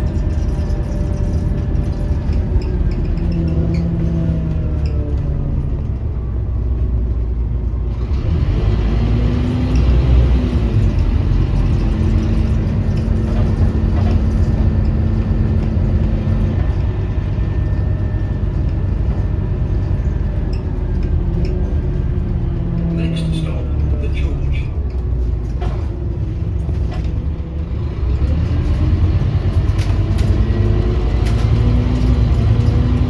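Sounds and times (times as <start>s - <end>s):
bus engine rumble: 0.0s - 33.0s
road noise: 0.0s - 33.0s.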